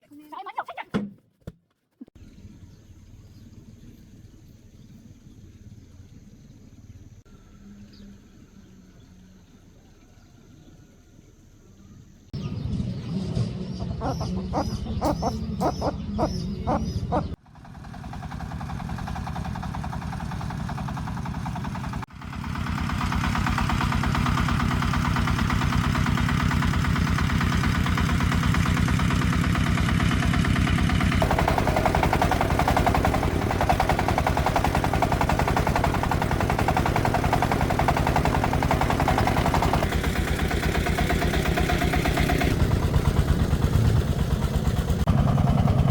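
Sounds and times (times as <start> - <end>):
diesel engine chugging: 12.2 - 45.9.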